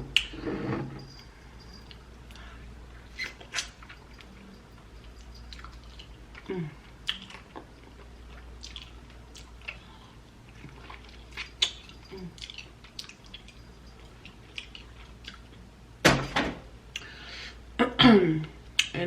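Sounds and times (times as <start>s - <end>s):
chewing with mouth clicks: 3.2s - 15.7s.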